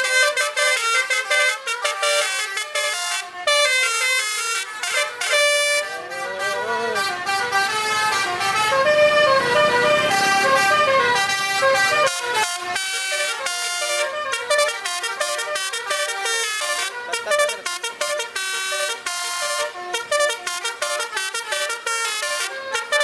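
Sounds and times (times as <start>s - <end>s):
multi-tone truck horn melody: 0.0s - 23.0s.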